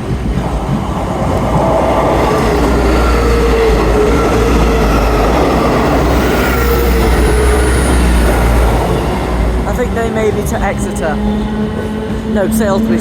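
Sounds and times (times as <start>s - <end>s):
diesel train engines rumbling: 0.0s - 13.0s.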